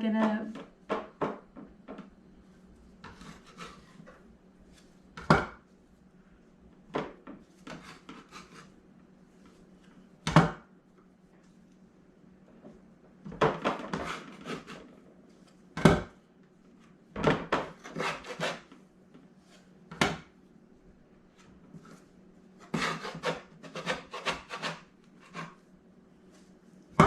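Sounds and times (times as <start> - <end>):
dough rubbing and scraping: 2.4 - 5.2, 7.4 - 9.8, 13.8 - 15.6, 17.7 - 18.8, 21.6 - 26.8.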